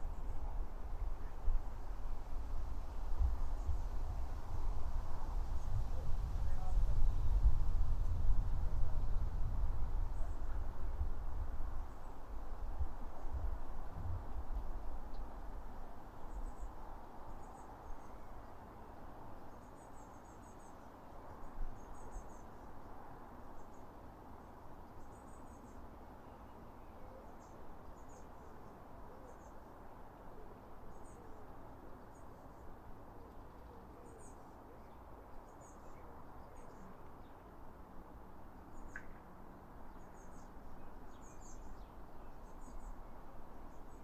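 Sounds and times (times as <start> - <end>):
low background hiss and rumble: 0.0 - 44.0
small birds chirping: 30.9 - 37.5, 38.6 - 44.0.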